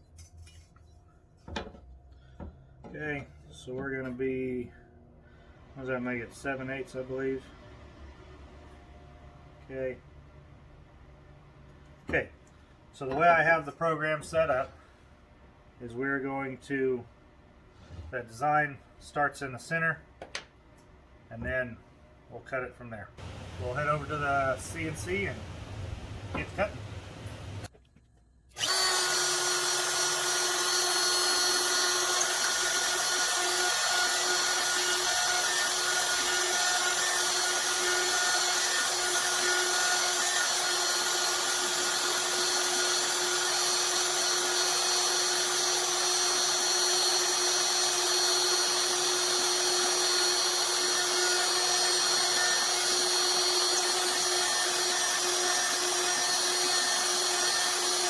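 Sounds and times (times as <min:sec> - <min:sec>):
router spindle high whine: 0:23.2 - 0:27.7, 0:28.5 - 0:58.0.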